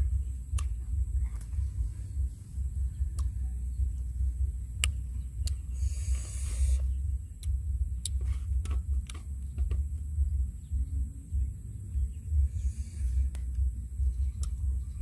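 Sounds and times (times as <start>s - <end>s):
steady low rumble: 0.0s - 15.0s
hissy noise: 5.7s - 7.1s.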